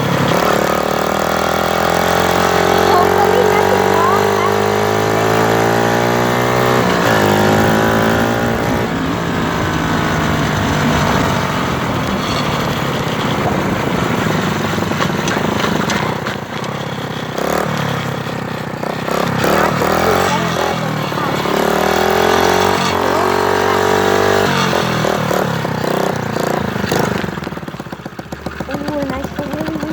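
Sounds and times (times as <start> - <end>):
motorcycle engine running: 0.0 - 29.9
rushing noise: 6.6 - 16.1.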